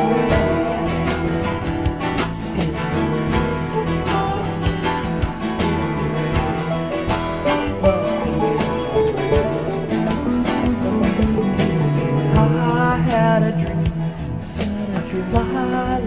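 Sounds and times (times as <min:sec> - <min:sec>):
country guitar melody over beat: 0:00.0 - 0:16.0.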